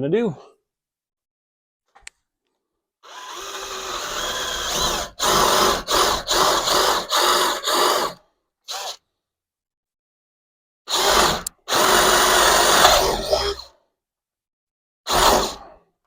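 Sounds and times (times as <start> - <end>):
power drill drilling into wood: 3.0 - 9.0, 10.9 - 13.7, 15.1 - 15.7.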